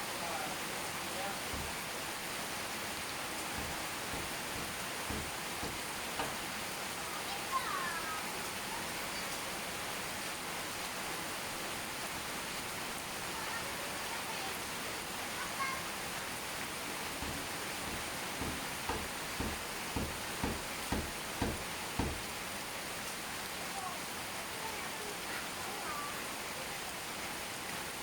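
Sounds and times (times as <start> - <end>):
steady rain falling: 0.0 - 28.0
low thumps: 1.5 - 2.0, 3.6 - 6.6, 17.2 - 22.3.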